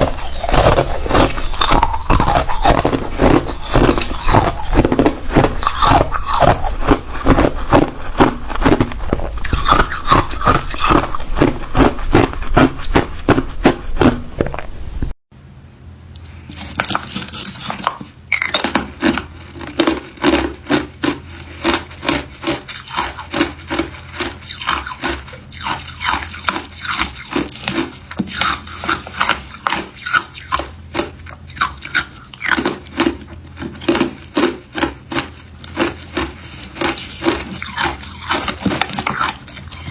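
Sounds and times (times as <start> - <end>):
ice cubes crunched and chewed: 0.0 - 14.7, 16.5 - 39.9.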